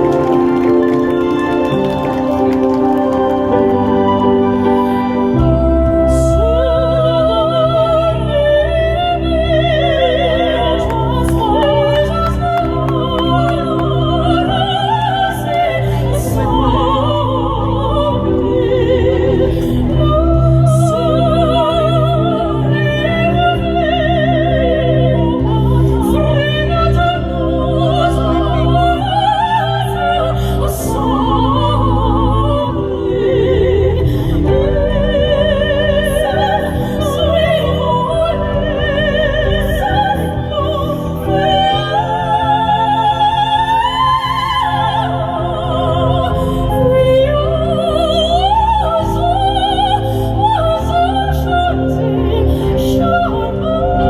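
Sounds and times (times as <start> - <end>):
sopranos singing operatic duet: 5.4 - 54.0.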